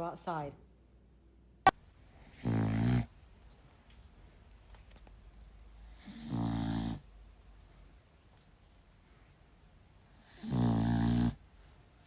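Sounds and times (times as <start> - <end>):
dog grumbling: 2.3 - 3.1.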